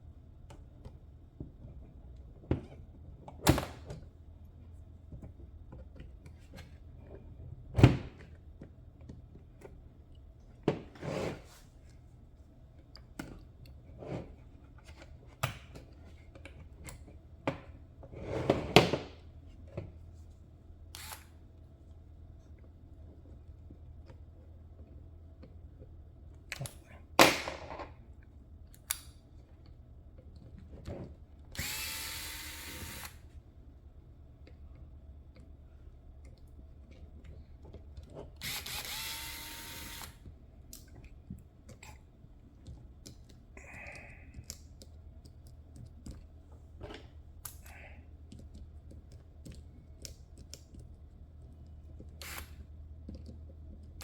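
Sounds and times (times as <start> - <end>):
low steady hum: 0.0 - 54.0
electric screwdriver whirring: 21.0 - 21.3, 31.6 - 33.2, 38.4 - 40.2, 52.2 - 52.6.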